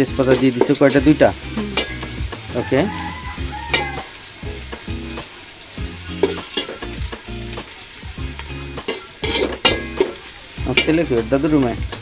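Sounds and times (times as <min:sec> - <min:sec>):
onions sizzling in oil: 0:00.0 - 0:12.0
spatula scraping a pot: 0:06.1 - 0:07.0, 0:08.8 - 0:11.0.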